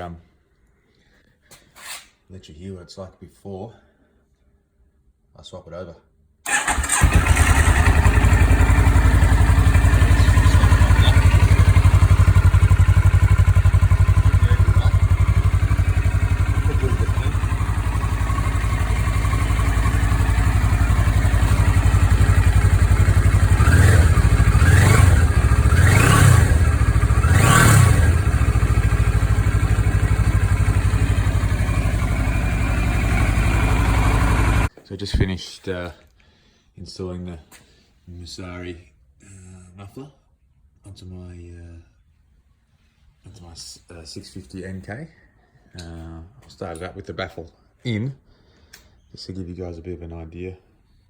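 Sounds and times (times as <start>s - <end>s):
motorcycle engine idling and revving: 6.5s - 34.7s.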